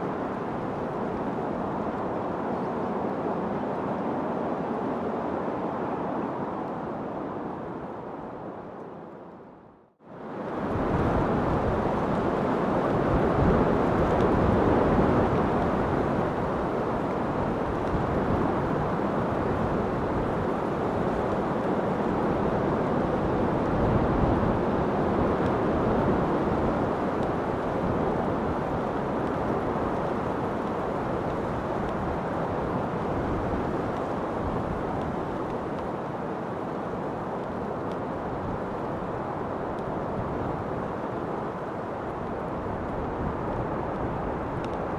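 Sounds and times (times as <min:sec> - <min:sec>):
steady wind: 0:00.0 - 0:44.9.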